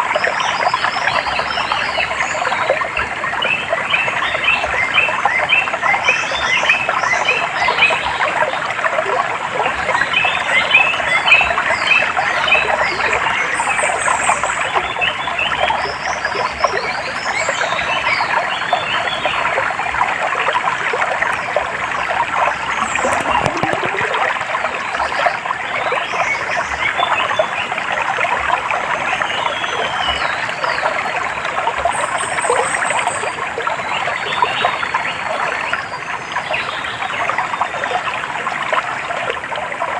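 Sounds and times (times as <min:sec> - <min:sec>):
stream water running: 0:00.0 - 0:39.9
birds chirping: 0:22.4 - 0:24.3.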